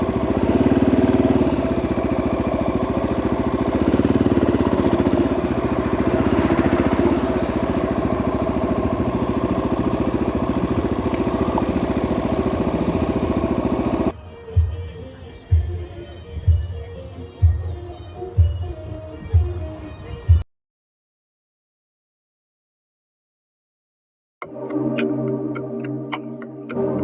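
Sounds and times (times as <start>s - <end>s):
motorcycle engine running at low revs: 0.0s - 20.4s.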